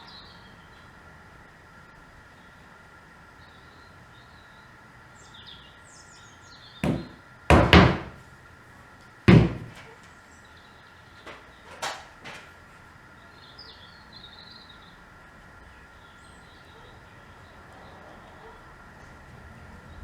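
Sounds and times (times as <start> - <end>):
sharp knocks: 6.8 - 8.2, 9.3 - 9.9
birds chirping faintly: 9.3 - 18.9.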